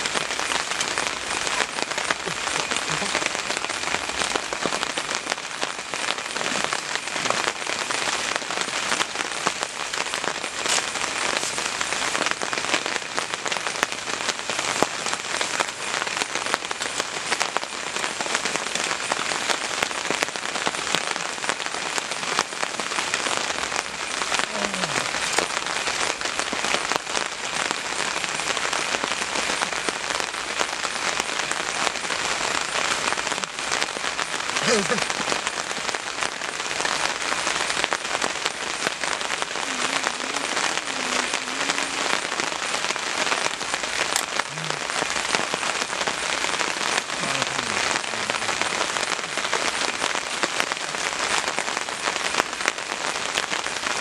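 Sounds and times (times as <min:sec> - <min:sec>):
rain on tent fabric: 0:00.0 - 0:54.0.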